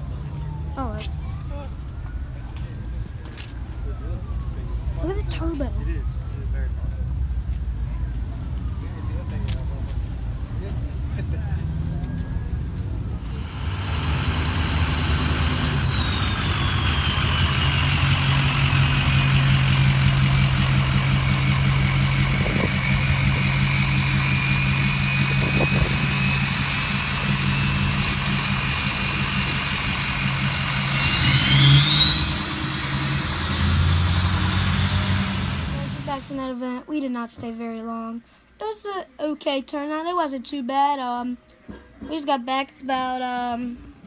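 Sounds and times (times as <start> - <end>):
car engine whining: 11.7 - 36.4.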